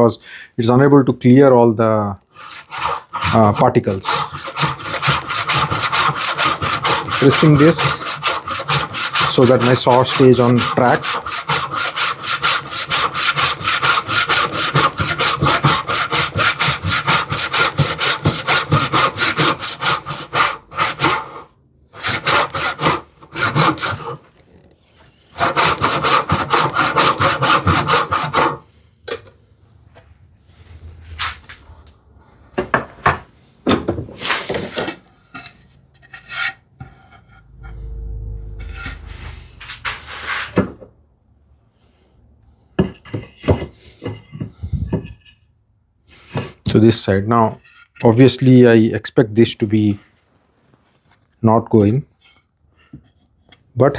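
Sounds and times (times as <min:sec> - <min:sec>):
hand saw cutting wood: 0:02.3 - 0:24.4, 0:25.3 - 0:28.7, 0:36.0 - 0:40.7
wood and tools knocking: 0:32.5 - 0:34.9, 0:42.8 - 0:45.4.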